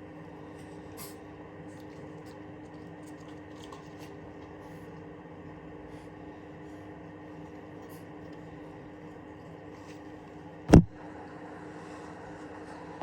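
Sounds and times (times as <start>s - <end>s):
steady low hum: 0.0s - 13.0s
faint rustles and light ticks: 0.5s - 5.1s.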